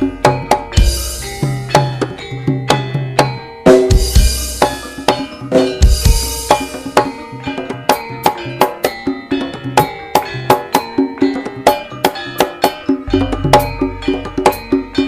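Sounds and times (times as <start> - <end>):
ringing metallic gamelan tones: 0.0 - 15.0
heavy bass: 13.1 - 15.0.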